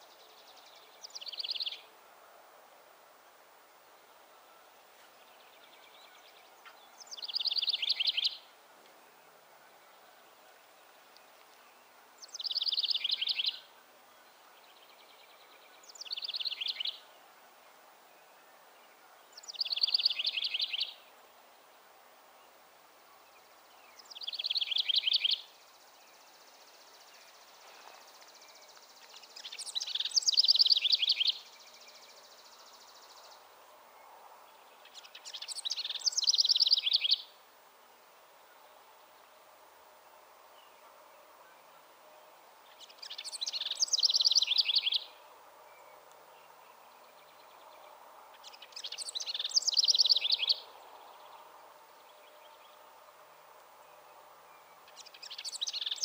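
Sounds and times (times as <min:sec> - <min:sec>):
songbird trilling: 0:06.6 - 0:08.4, 0:12.2 - 0:13.6, 0:24.0 - 0:25.5, 0:29.1 - 0:31.5, 0:34.9 - 0:37.3, 0:42.8 - 0:45.2, 0:48.4 - 0:50.7, 0:54.8 - 0:56.0.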